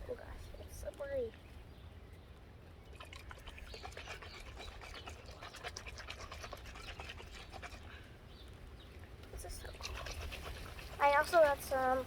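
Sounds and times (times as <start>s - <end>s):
water sloshing in bottle: 2.9s - 8.0s, 9.6s - 11.6s.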